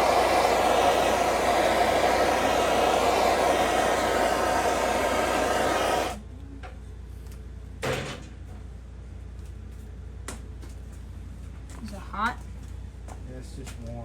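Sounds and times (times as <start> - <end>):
hot-air blower whooshing: 0.0 - 6.2.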